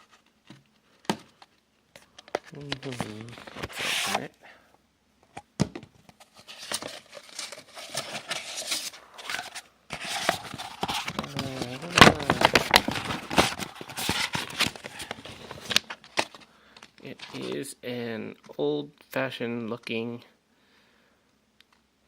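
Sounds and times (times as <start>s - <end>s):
paper rustling and crinkling: 2.1s - 4.3s, 6.2s - 17.6s.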